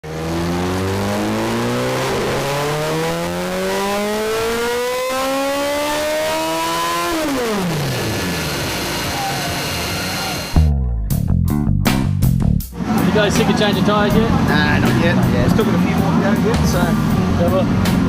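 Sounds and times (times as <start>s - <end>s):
motorcycle engine accelerating: 0.0s - 12.2s.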